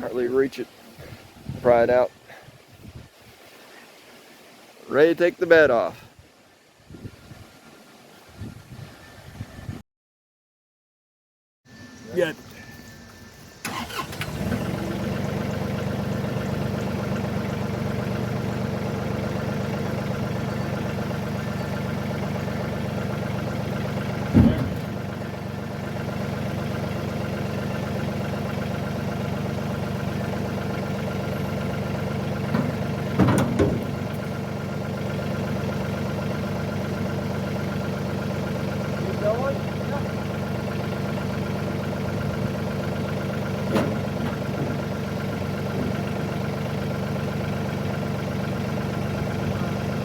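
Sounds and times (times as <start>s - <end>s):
vehicle engine starting and idling: 12.0s - 50.0s
loud knocks: 24.2s - 25.0s, 32.5s - 34.0s.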